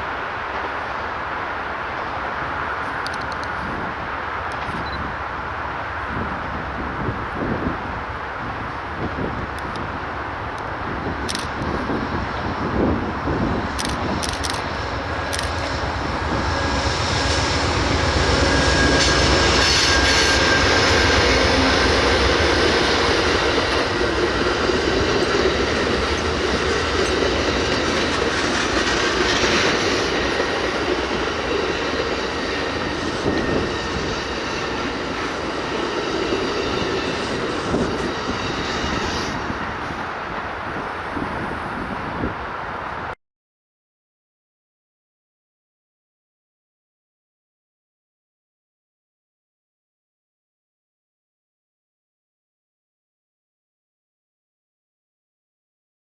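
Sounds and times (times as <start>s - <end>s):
train wheels rumbling on rails: 0.0s - 43.2s
high wheel squeal: 14.2s - 30.8s, 31.4s - 39.9s.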